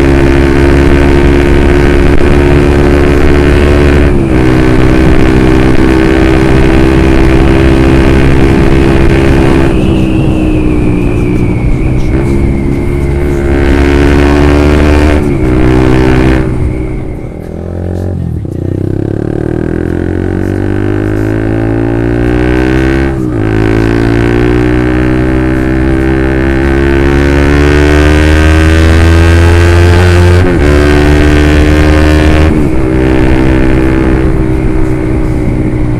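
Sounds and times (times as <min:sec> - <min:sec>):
motorcycle engine shifting gears: 0:00.0 - 0:35.9.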